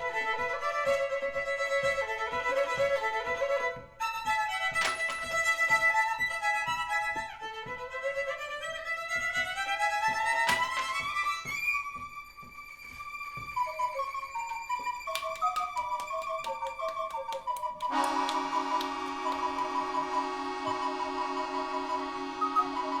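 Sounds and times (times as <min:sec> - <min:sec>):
violin music: 0:00.0 - 0:23.0.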